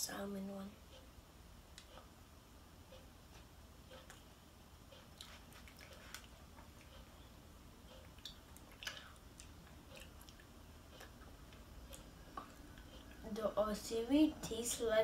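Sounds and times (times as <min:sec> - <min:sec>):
clock ticking: 0:00.0 - 0:05.2, 0:06.4 - 0:15.0
child chewing gummy candy: 0:03.3 - 0:07.2, 0:07.9 - 0:13.3.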